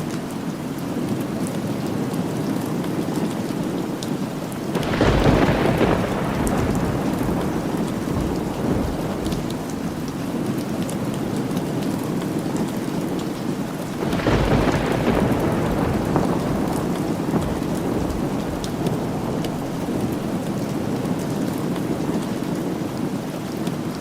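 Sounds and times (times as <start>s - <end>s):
steady rain falling: 0.0s - 24.0s
thunder rumbling: 4.7s - 22.0s.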